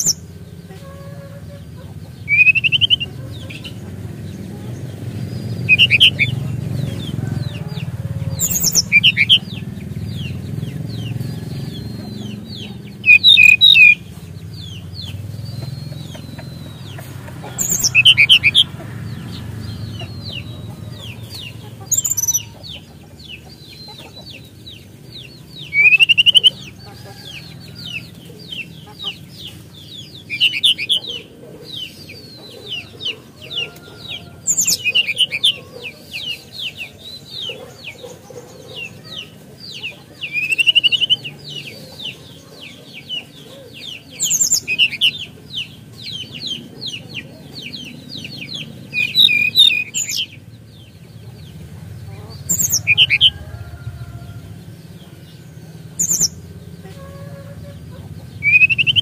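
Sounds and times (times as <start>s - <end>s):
songbird chirps and trills: 0.0s - 59.0s.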